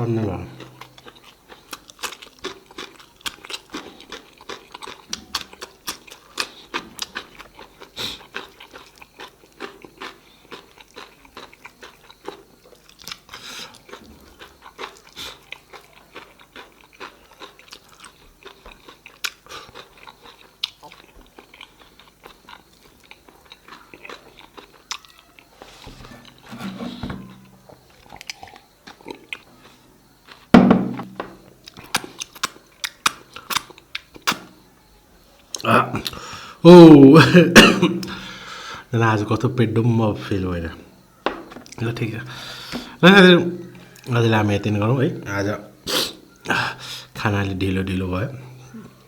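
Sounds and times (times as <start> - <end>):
person chewing food: 0.4 - 34.7.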